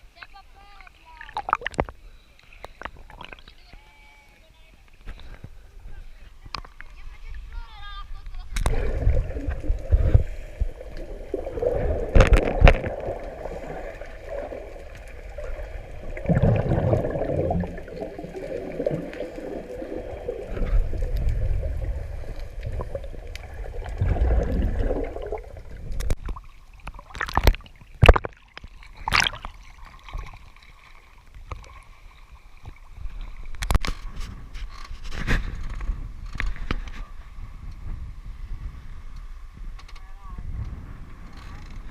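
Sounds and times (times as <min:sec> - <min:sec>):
water gurgling and sloshing: 0:00.1 - 0:39.5.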